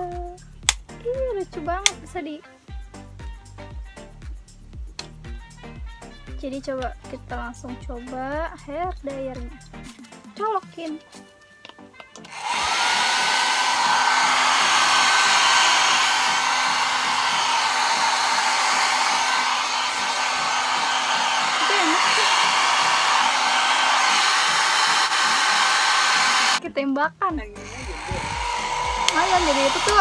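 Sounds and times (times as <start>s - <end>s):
hair dryer motor whine: 12.2s - 26.6s, 27.6s - 30.0s.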